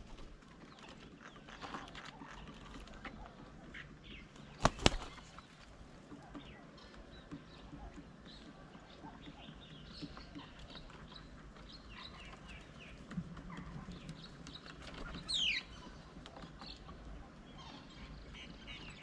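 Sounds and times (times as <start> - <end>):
birds chirping and chattering: 0.0 - 19.0.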